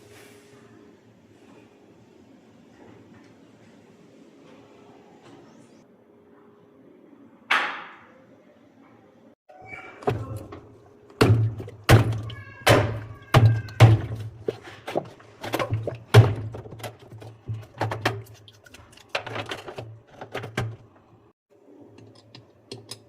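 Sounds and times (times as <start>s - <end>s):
washing machine hum: 9.6s - 23.0s
knocks and thuds: 10.0s - 18.2s
washing machine thunk: 15.4s - 18.2s.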